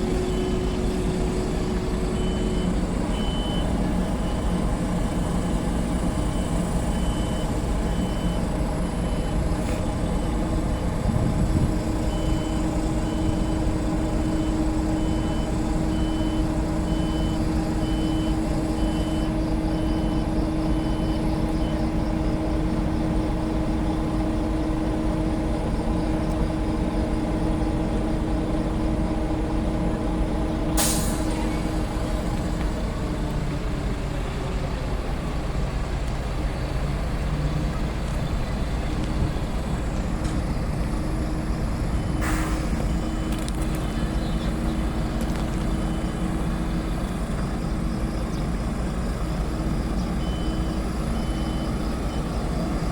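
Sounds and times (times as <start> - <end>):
reversing alarm beeping: 0.0 - 29.8, 37.7 - 52.9
diesel engine running: 0.0 - 52.9
air brake hiss: 30.8 - 32.2, 42.1 - 42.9.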